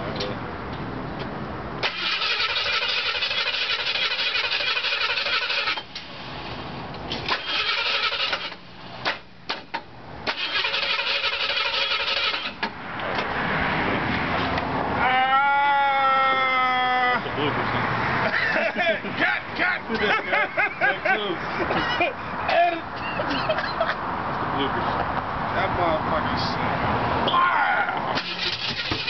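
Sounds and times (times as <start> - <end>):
starter motor cranking: 1.8 - 5.9, 7.2 - 8.6, 10.3 - 12.6, 28.2 - 29.0.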